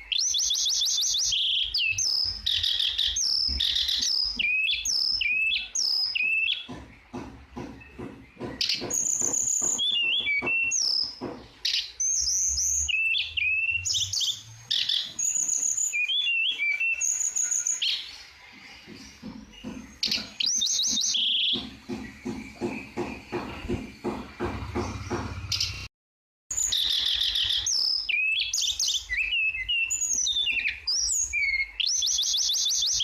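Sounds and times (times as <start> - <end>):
bird singing whistled phrases: 0.0 - 6.7, 8.8 - 18.1, 20.0 - 21.6, 26.5 - 33.0.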